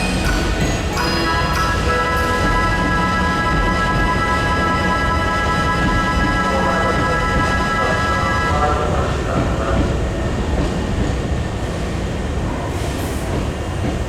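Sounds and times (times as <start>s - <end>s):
station chime melody: 0.0s - 8.6s
electric train rumbling: 0.0s - 14.0s.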